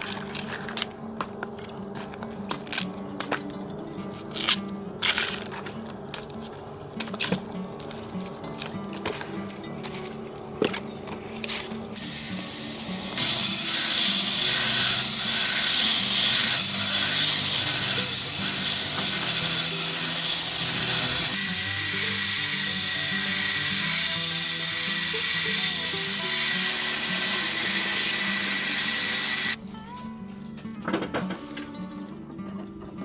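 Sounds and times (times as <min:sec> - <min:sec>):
background music: 0:00.0 - 0:33.0
loud steady hiss: 0:12.0 - 0:29.6.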